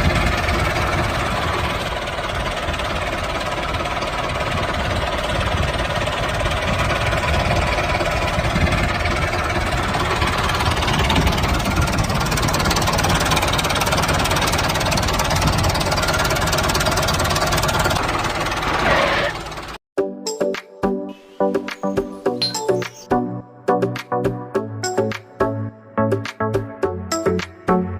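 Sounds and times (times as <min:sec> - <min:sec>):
small tractor motor running: 0:00.0 - 0:19.8
music: 0:20.0 - 0:27.9.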